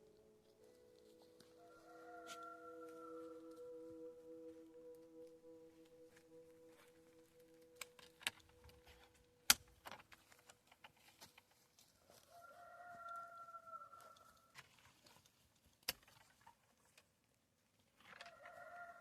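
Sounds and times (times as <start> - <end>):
soft steady musical tones: 0.0 - 16.3
rooster crowing: 1.5 - 4.4, 12.2 - 14.4, 18.3 - 19.0.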